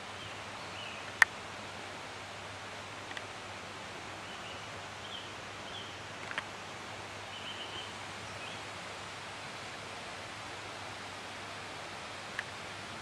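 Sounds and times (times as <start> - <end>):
steady outdoor hiss: 0.0 - 13.0
small clicks: 3.0 - 3.3, 6.2 - 6.5
small bird chirping faintly: 4.2 - 6.4, 7.2 - 8.7.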